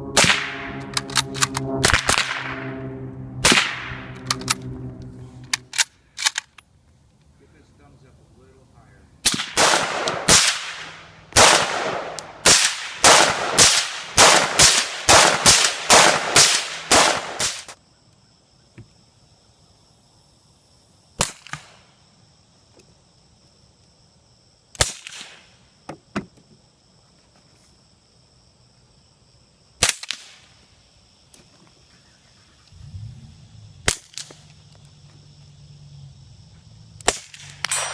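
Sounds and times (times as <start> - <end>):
suppressed gunshots: 0.1 - 2.7, 9.2 - 17.8, 37.0 - 37.9.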